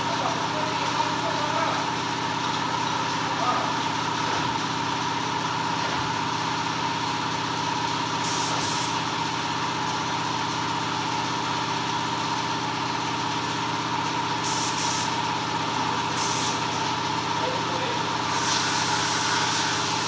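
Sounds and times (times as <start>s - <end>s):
air brake hisses: 14.4s - 15.1s, 18.3s - 20.0s.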